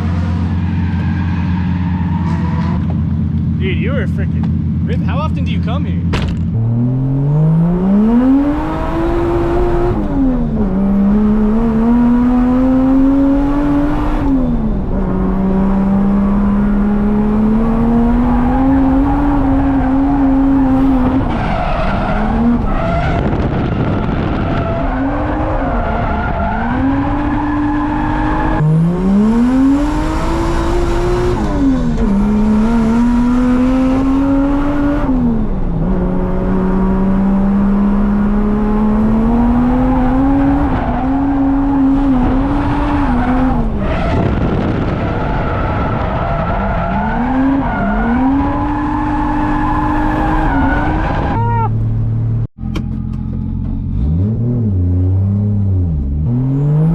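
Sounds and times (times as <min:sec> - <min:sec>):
tyres squealing and skidding: 0:00.0 - 0:03.1, 0:18.1 - 0:28.6, 0:39.8 - 0:51.8
car engine revving hard: 0:06.3 - 0:51.4, 0:53.8 - 0:56.9.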